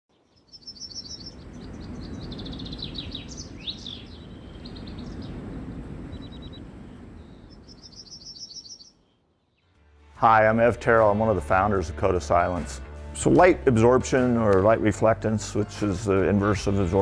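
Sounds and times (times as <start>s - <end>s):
songbirds chirping and trilling: 0.1s - 9.8s.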